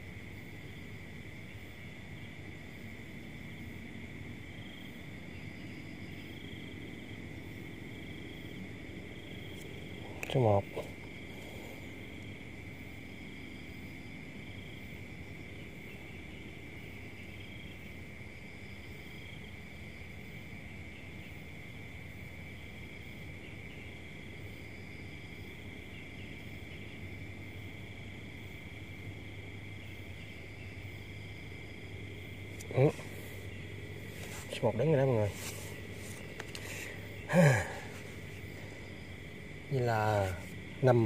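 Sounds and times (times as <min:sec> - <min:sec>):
crickets chirring: 0:00.0 - 0:41.0
faint low hum: 0:00.0 - 0:41.0.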